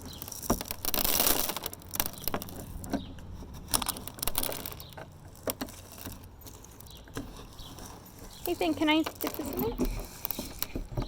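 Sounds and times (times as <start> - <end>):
seed pouring rush: 0.1 - 2.2.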